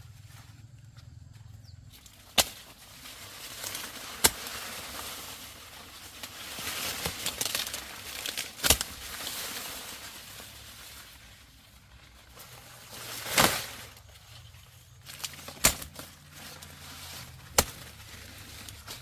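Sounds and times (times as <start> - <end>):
corn plants rustling and crackling: 0.0 - 19.0
corn ears snapping off stalks: 1.9 - 10.3, 12.4 - 14.0, 15.0 - 19.0.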